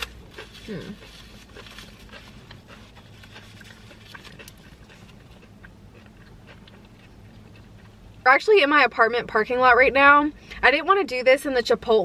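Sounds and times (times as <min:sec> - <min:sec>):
quiet chewing: 0:00.0 - 0:08.2
low steady hum: 0:00.0 - 0:12.0.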